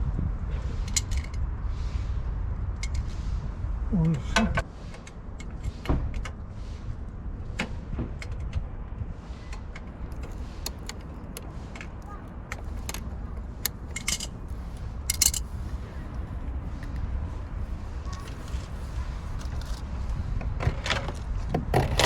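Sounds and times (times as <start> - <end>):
steady low rumble: 0.0 - 22.0
small metal objects jingling: 12.7 - 15.5.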